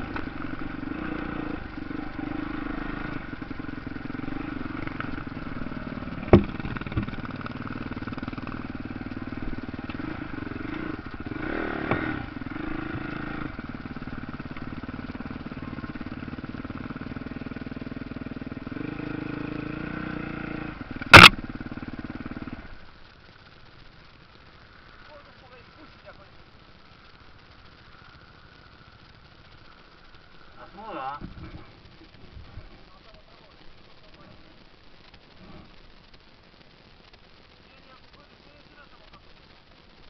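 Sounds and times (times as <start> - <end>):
motorcycle engines running: 0.0 - 36.2
sharp knocks: 6.2 - 7.2.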